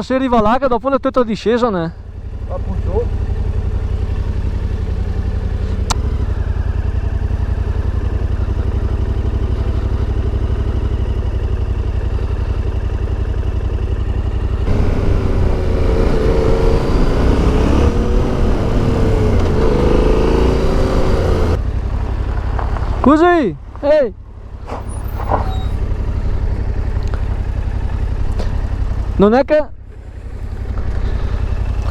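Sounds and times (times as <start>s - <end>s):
motorcycle engine revving: 2.2s - 23.0s.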